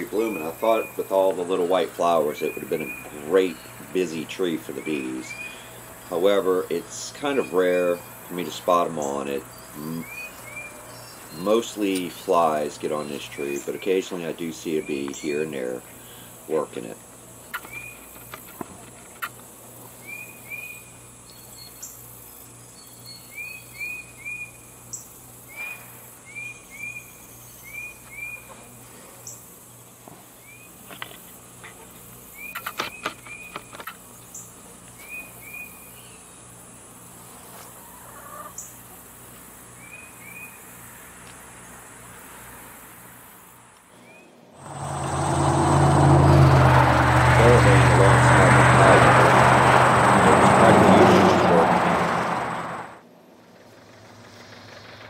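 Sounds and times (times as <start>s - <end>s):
faint steady background hum: 0.0s - 44.7s
small songbird chirping: 2.2s - 3.9s, 4.6s - 6.2s, 7.3s - 14.0s, 17.4s - 18.3s, 20.0s - 28.5s, 32.3s - 36.5s.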